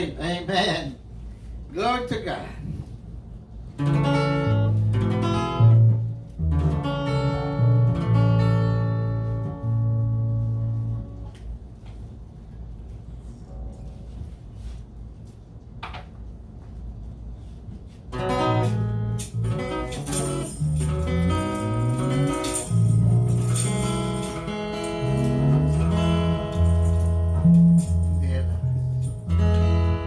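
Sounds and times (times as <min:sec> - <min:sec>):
bass line: 0:03.8 - 0:11.2
strummed acoustic guitar: 0:03.8 - 0:11.2, 0:18.1 - 0:30.0.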